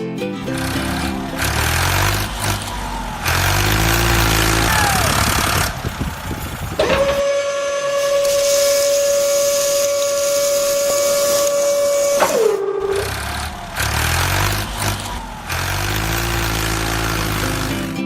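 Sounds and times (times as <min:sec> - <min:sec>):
low engine rumble: 0:00.4 - 0:07.2, 0:11.0 - 0:18.0
long horn blast: 0:06.8 - 0:14.8.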